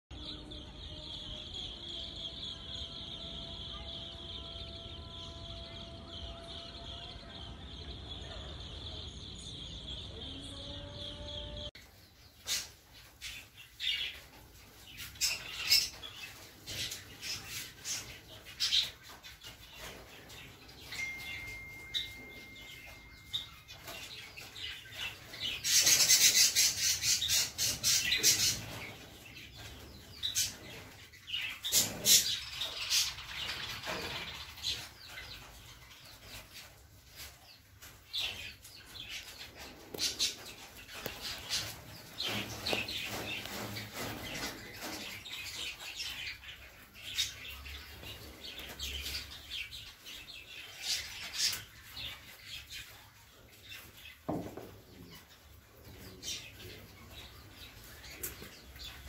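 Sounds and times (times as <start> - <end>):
cage birds chirping and squawking: 0.1 - 59.0.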